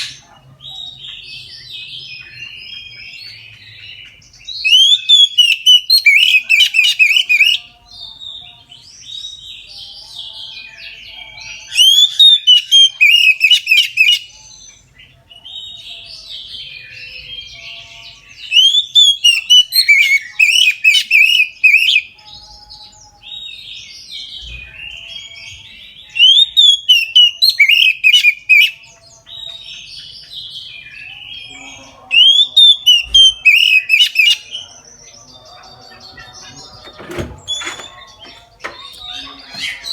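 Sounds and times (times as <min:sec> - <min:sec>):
bird song bursts: 0:00.0 - 0:10.1, 0:11.6 - 0:39.9
soft bird twittering: 0:11.8 - 0:39.9.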